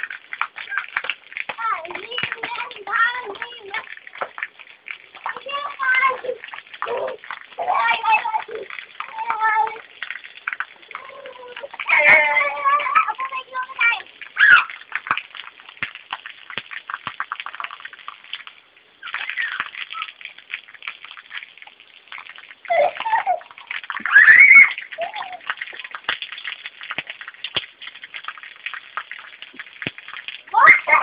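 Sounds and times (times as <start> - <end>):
rain patter: 0.0 - 31.0
child calling out: 5.4 - 9.8, 11.0 - 14.8, 24.1 - 25.4, 30.5 - 31.0.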